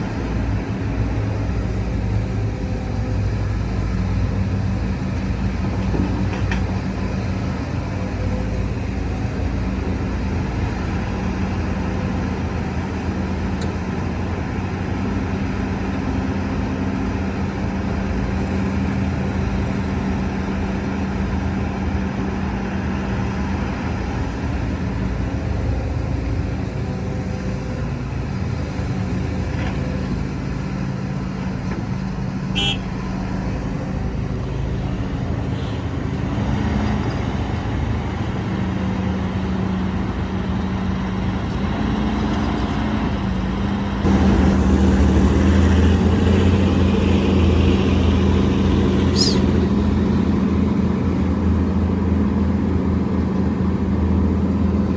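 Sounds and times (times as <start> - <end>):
heavy diesel machinery droning: 0.0 - 54.9.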